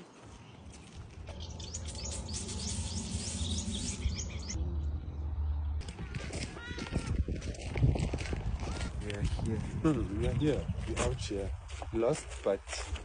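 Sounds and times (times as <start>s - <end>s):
bird rising chirps: 0.6s - 5.6s
steady low rumble: 0.9s - 11.7s.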